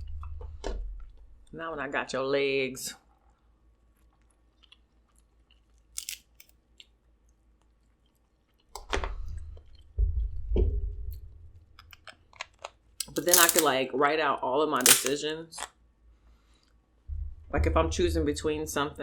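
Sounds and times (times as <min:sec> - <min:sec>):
chewing and crunching: 0:04.0 - 0:06.5, 0:12.0 - 0:13.7
crab shell crackle: 0:06.0 - 0:06.2, 0:13.0 - 0:13.7, 0:14.8 - 0:15.2.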